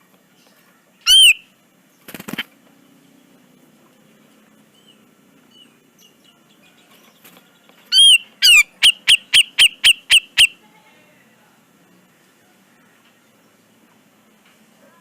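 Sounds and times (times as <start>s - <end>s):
faint bird chirps: 0.3s - 1.6s, 4.7s - 10.6s
bird calling sharp down-slurred notes: 1.0s - 1.5s, 7.9s - 10.6s.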